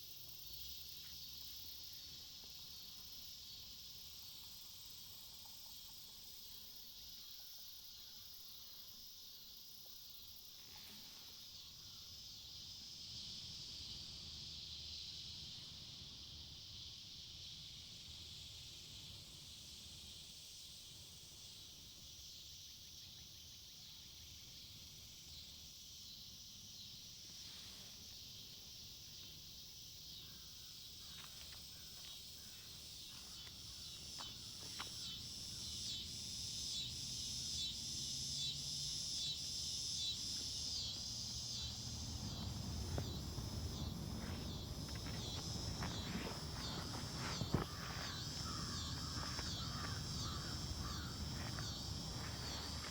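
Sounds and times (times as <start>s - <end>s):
insect chorus buzzing: 0.0s - 52.9s
soft rustles: 42.2s - 52.9s.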